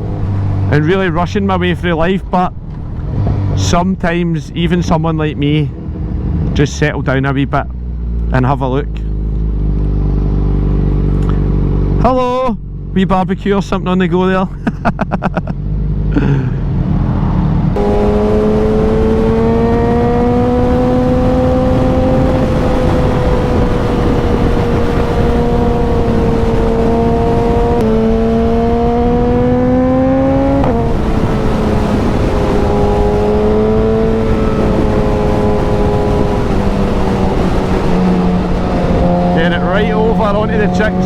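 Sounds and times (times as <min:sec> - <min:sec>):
wind and road noise: 0:00.0 - 0:41.0
motorcycle engine running: 0:17.4 - 0:41.0.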